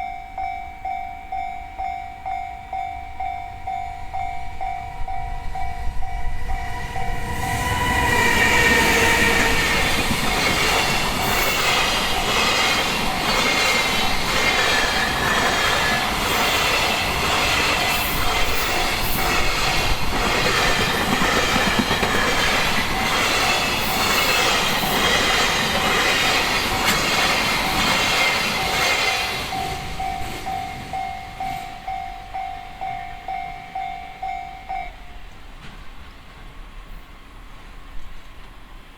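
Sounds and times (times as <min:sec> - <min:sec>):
crossing warning bell ringing: 0:00.0 - 0:35.5
train wheels clacking over rail joints: 0:07.6 - 0:31.0.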